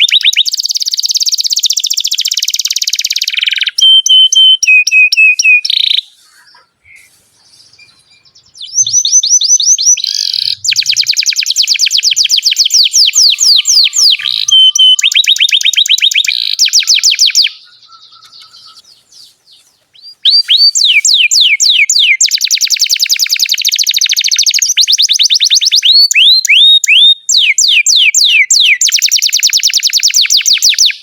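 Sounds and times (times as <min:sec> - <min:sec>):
canary singing trills: 0:00.0 - 0:31.0.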